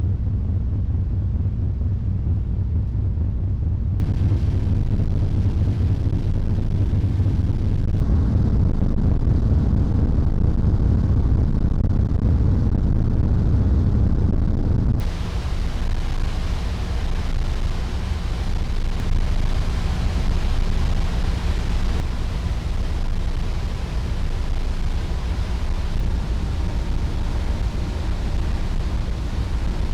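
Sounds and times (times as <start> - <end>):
wind on microphone: 4.0 - 29.9
ferry engines rumbling: 15.0 - 29.9
rush of water: 15.0 - 29.9.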